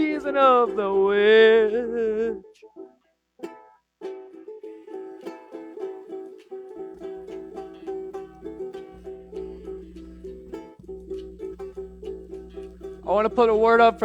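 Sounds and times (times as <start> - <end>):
stringed instrument strumming: 0.0 - 14.0
low steady hum: 5.3 - 14.0.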